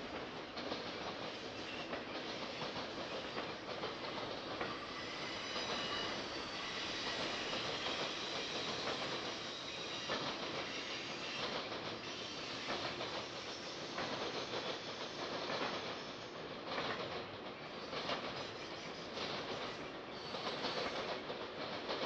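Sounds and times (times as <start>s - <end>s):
faint wheel squeal: 4.8s - 15.4s.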